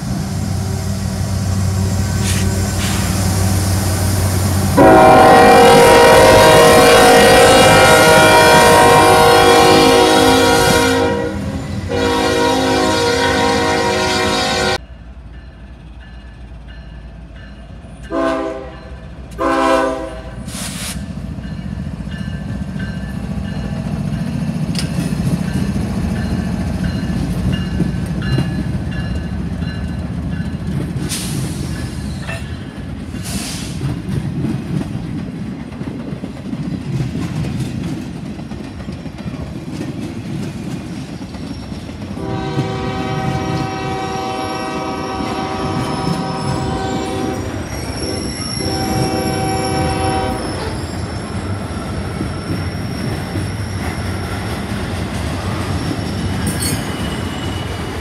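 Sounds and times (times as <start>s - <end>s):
train wheel squeals: 0.0s - 4.2s, 20.4s - 34.0s, 40.8s - 42.1s, 43.4s - 58.0s
freight train rumbling past: 0.0s - 58.0s
train horn blasts: 4.7s - 14.8s, 18.1s - 20.6s, 42.2s - 50.8s.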